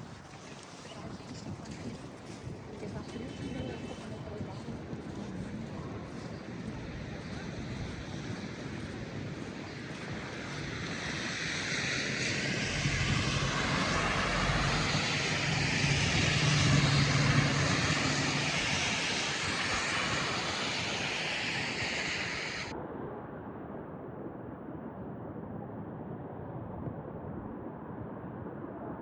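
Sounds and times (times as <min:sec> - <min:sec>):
passing engine hum and rush: 0:04.1 - 0:22.7.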